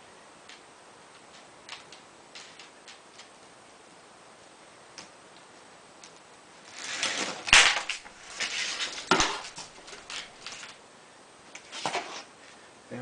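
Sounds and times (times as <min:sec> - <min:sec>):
metal tubes rustling and clattering: 0:06.7 - 0:10.8.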